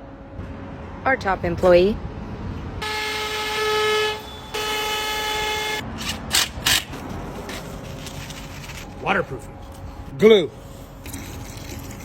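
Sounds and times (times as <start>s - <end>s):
horn blasts: 2.8s - 5.8s.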